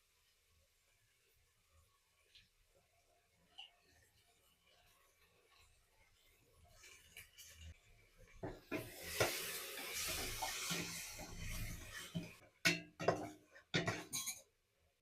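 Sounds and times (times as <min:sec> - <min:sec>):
water pouring: 0:03.5 - 0:12.4.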